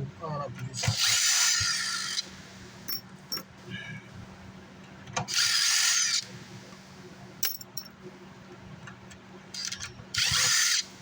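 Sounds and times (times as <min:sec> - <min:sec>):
small power tool running: 0:00.9 - 0:02.3, 0:05.3 - 0:06.3, 0:10.2 - 0:11.0.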